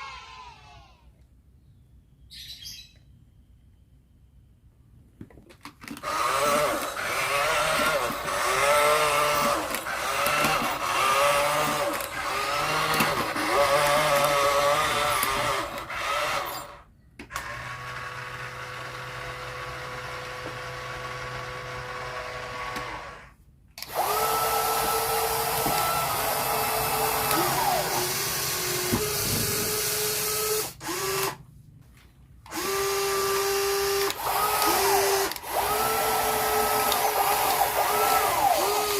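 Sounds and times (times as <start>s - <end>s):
small electric motors whining: 5.9s - 31.4s, 32.5s - 38.9s.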